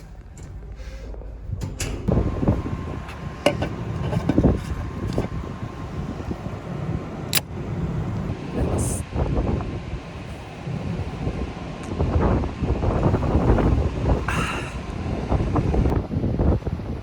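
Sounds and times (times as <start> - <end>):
ferry engine rumble: 0.0 - 17.0.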